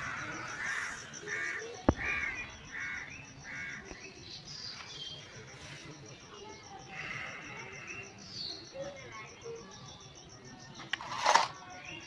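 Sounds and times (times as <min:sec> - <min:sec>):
bird calling: 0:00.0 - 0:05.4.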